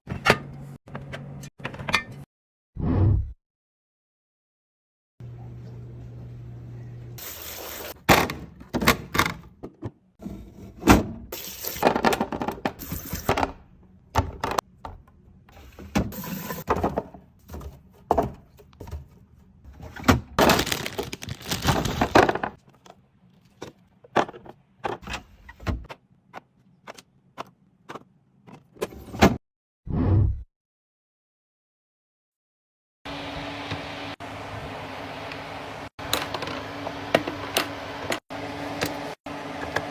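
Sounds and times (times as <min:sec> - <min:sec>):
packaging rustling and scraping: 0:20.4 - 0:22.9.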